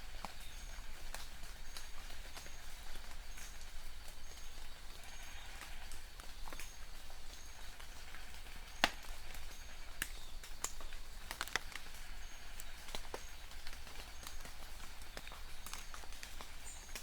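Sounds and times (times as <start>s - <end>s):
raindrops ticking: 0.0s - 17.0s.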